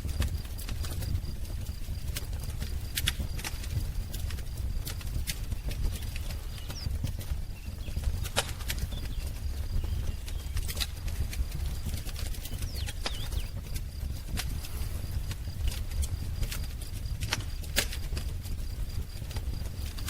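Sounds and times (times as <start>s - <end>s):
flames rumbling: 0.0s - 20.0s
wood fire crackling and popping: 0.0s - 20.0s
faint bird chirps: 5.5s - 11.0s, 11.7s - 13.7s.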